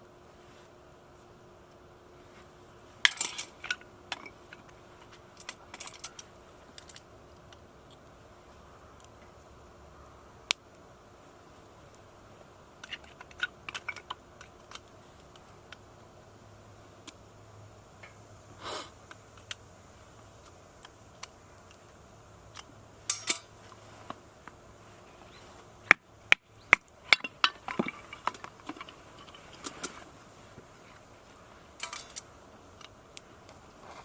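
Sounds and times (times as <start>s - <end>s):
metal camp gear clinking: 3.0s - 7.1s, 12.8s - 14.9s, 22.6s - 23.7s, 27.0s - 30.2s, 31.8s - 33.0s.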